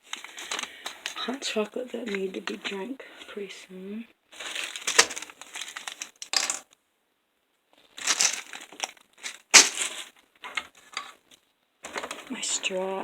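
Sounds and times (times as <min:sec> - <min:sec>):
packaging crinkling: 0:00.0 - 0:01.4, 0:04.3 - 0:06.6, 0:07.8 - 0:12.3.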